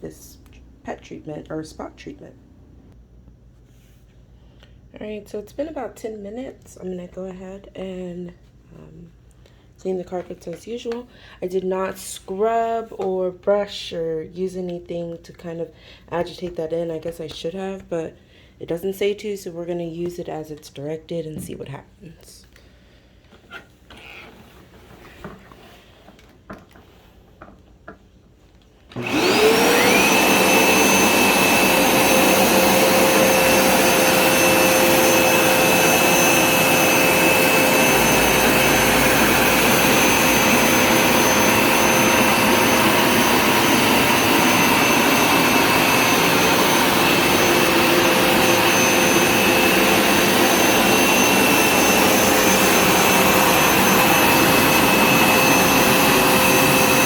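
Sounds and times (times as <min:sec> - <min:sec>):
carpet cleaner motor whining: 0:28.9 - 0:57.0.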